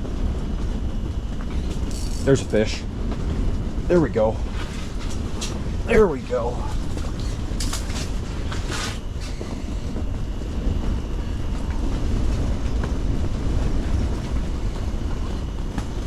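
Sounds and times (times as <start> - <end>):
strong wind buffeting a hut: 0.0 - 16.0
short rustling noises: 6.6 - 9.7.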